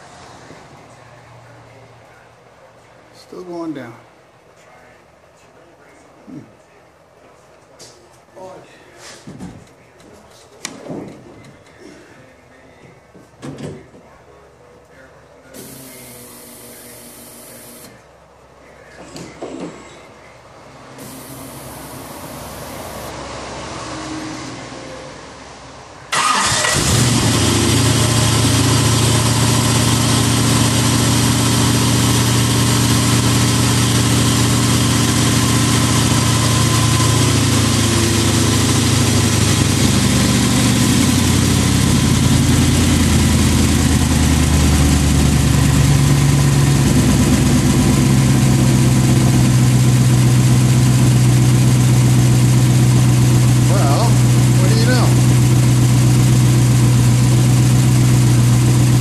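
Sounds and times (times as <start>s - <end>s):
car engine starting and idling: 15.6s - 18.0s, 20.9s - 23.2s, 26.1s - 59.0s.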